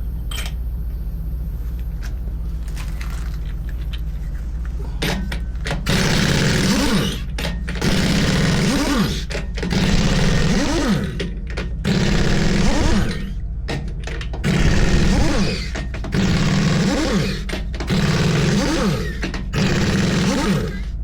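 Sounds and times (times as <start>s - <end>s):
pneumatic impact wrench hammering: 5.0s - 21.0s.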